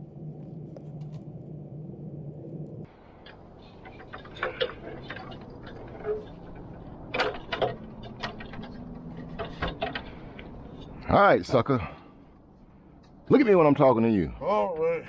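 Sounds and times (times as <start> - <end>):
steady low hum: 0.0 - 2.9.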